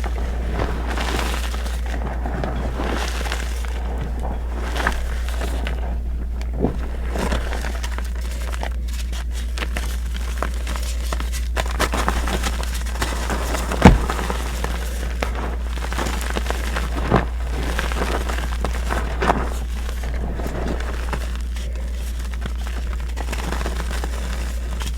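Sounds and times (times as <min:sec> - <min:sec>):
chalk crackling and crunching: 0:00.0 - 0:24.9
steady low hum: 0:00.0 - 0:24.9
thump: 0:13.7 - 0:14.5.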